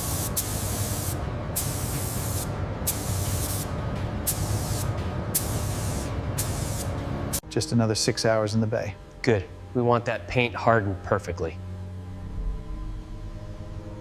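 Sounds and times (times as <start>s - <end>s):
paint spray gun hissing: 0.0s - 7.4s
steady low hum: 0.0s - 14.0s.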